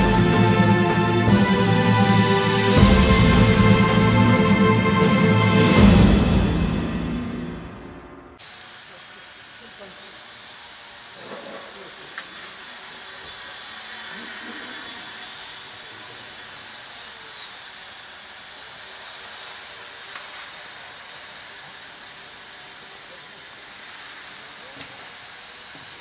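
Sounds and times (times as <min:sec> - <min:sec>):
electric motors whining: 0:08.4 - 0:26.0.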